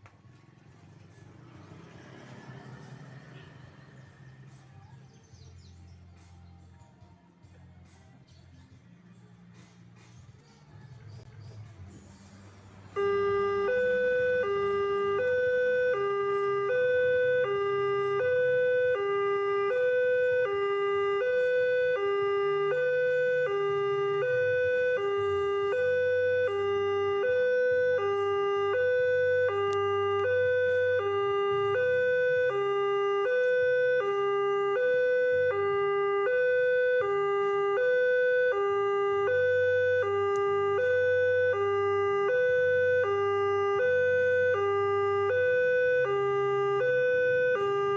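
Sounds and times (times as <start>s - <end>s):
level crossing two-tone alarm: 12.9s - 47.9s.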